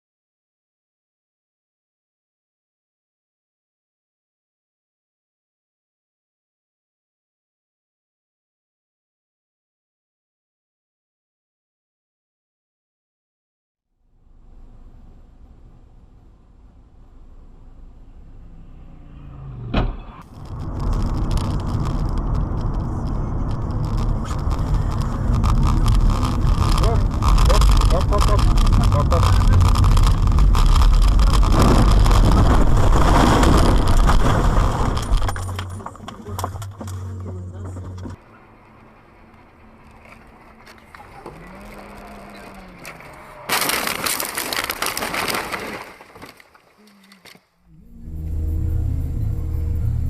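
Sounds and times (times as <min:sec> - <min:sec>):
car engine and road rumble: 0:13.9 - 0:45.5, 0:46.5 - 0:50.0
vehicle collision crash: 0:19.2 - 0:38.4, 0:42.8 - 0:46.7
sharp thump: 0:19.6 - 0:20.2
crackling clicks: 0:20.2 - 0:38.2, 0:39.2 - 0:47.5.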